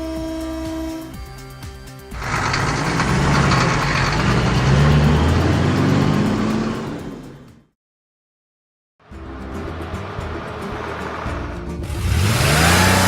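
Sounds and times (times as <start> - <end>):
vehicle engine starting and revving: 2.1 - 7.7, 9.8 - 13.0.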